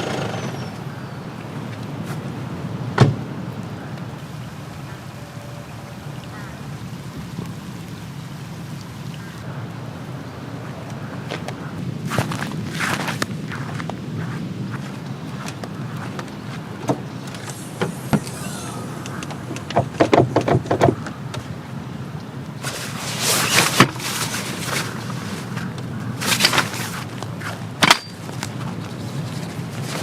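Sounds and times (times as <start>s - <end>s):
soft rain: 0.0s - 30.0s
camping gear rustling: 11.3s - 21.6s, 22.6s - 30.0s
sharp clicks and knocks: 19.0s - 21.5s.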